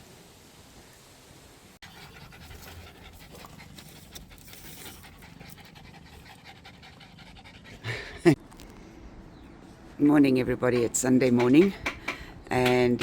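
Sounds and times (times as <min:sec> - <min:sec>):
dog panting: 0:01.8 - 0:08.3.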